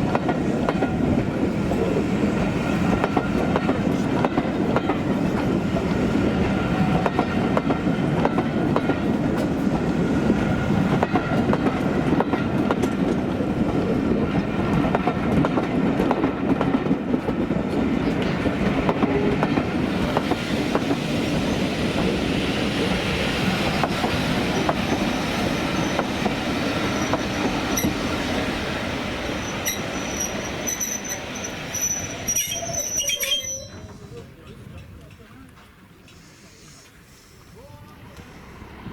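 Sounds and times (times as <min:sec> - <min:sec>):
train wheels clicking over rail joints: 0:00.0 - 0:37.2
high wheel squeal: 0:24.5 - 0:28.1, 0:29.2 - 0:34.1.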